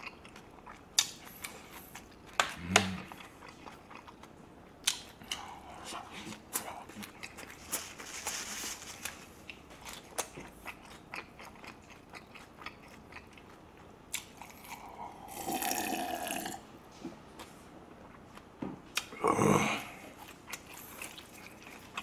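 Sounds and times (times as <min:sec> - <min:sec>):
chewing with wet mouth clicks: 0:00.0 - 0:05.5, 0:09.4 - 0:14.8, 0:20.2 - 0:22.0.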